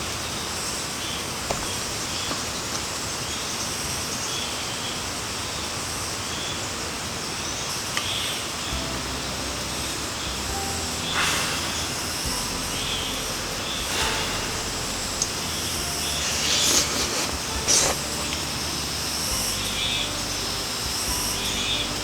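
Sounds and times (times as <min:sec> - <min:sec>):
rain falling: 0:08.5 - 0:22.0
low hum: 0:08.7 - 0:22.0.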